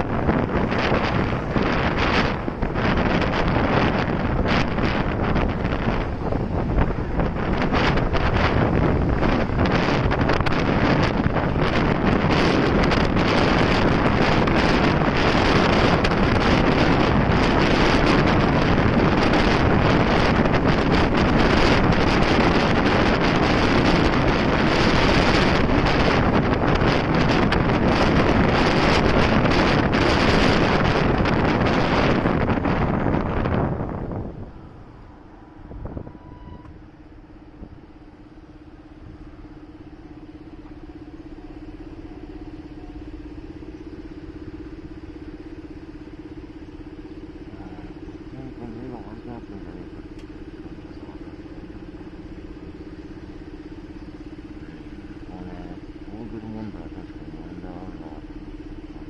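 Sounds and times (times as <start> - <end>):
wind rushing over microphone: 0.0 - 59.0
motorcycle engine idling: 36.8 - 59.0.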